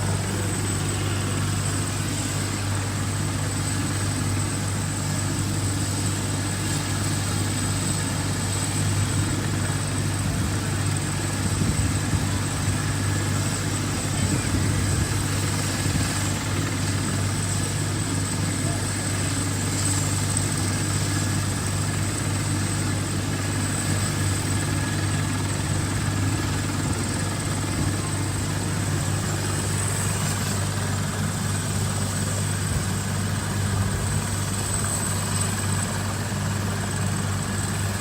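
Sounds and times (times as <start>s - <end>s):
helicopter engine and rotor: 0.0s - 38.0s
high-pitched turbine whine: 0.0s - 38.0s.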